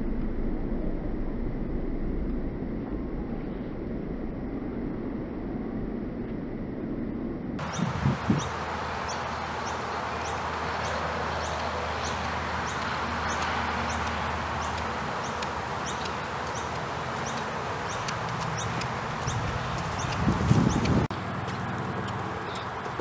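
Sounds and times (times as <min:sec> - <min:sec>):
bird chirping: 0:07.6 - 0:21.1
hoofbeats on dirt: 0:10.3 - 0:23.0.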